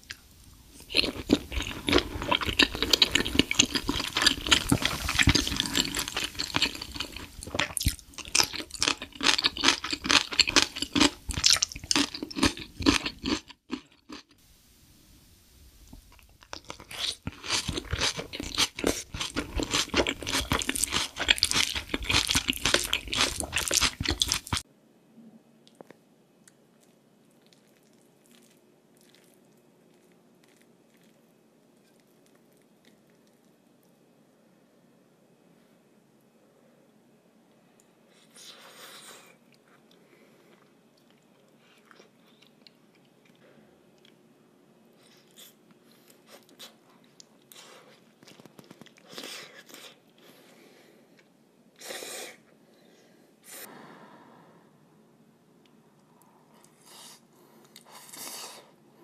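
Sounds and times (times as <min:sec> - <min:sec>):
wet chewing and smacking: 0:00.0 - 0:14.4, 0:15.9 - 0:24.6, 0:25.7 - 0:33.9, 0:45.2 - 0:50.3.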